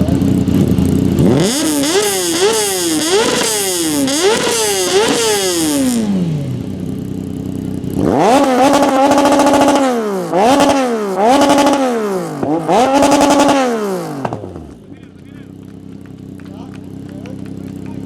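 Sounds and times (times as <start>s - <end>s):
car engine revving: 0.0s - 18.0s
rev limiter crackle: 14.2s - 18.0s.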